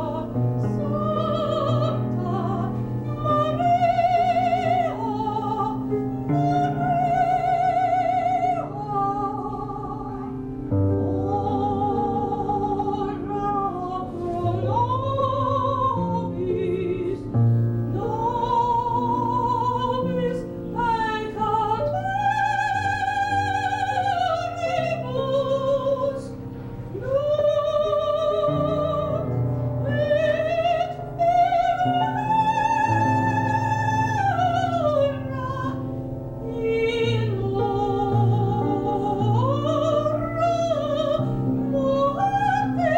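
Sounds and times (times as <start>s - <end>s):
operatic singing: 0.0s - 42.9s
piano accompaniment: 0.0s - 42.9s.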